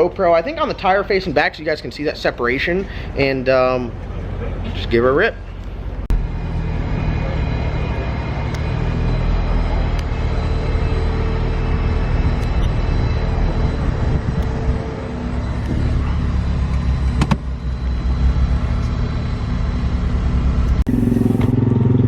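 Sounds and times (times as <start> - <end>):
car engine idling: 5.4 - 22.0.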